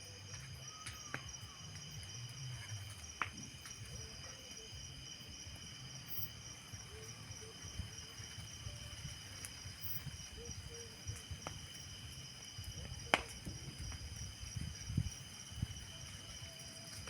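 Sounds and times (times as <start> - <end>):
night insects chirping: 0.0 - 17.0.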